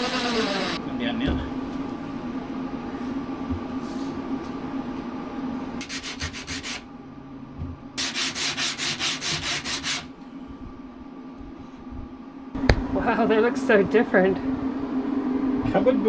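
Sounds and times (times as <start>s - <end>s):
wood being hand-sanded: 0.0s - 0.8s, 5.8s - 6.8s, 8.0s - 10.1s.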